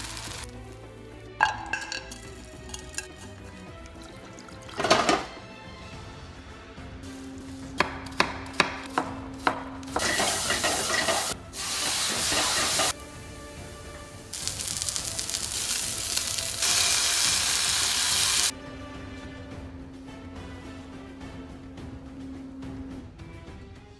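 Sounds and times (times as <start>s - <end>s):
food sizzling in a hot pan: 0.0s - 1.2s, 9.9s - 18.5s.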